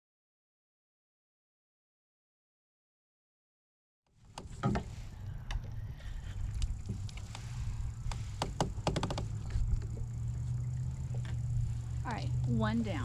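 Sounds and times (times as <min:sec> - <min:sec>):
steady low rumble: 0:04.2 - 0:13.0.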